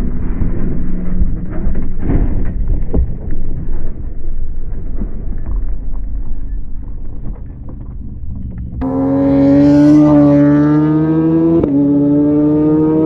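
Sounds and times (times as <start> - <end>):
motorcycle engine running high: 8.8 - 13.0.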